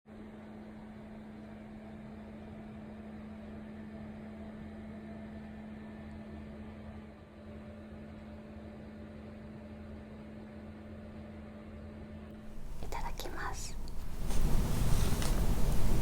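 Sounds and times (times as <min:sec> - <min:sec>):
faint hiss: 0:12.4 - 0:16.0
steady low hum: 0:12.4 - 0:16.0.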